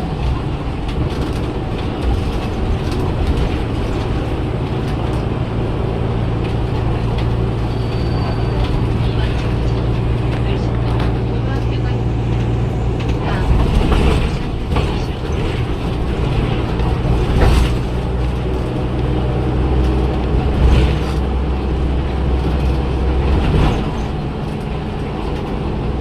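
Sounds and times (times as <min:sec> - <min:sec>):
bus diesel engine droning: 0:00.0 - 0:26.0.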